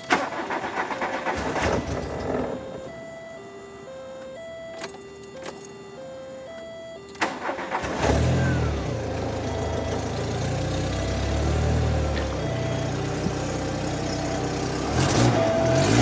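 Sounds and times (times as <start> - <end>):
car engine starting and idling: 0.0 - 16.0.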